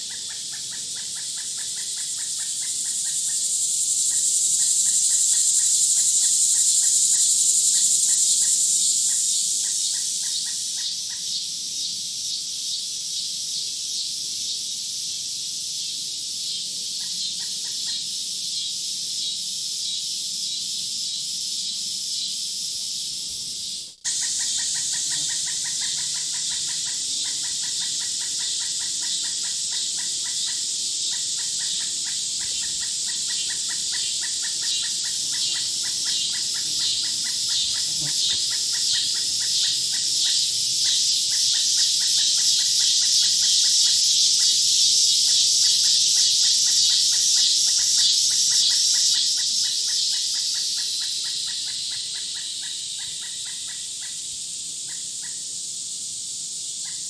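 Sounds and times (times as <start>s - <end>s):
loud high insect buzz: 0.0s - 57.0s
rapid pulsed calls: 23.6s - 44.6s.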